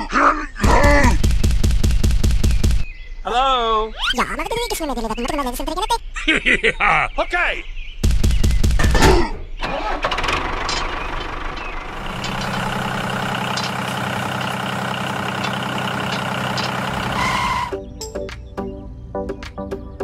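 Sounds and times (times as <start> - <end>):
heavy vehicle engine running: 9.6 - 17.8
music: 17.7 - 20.0.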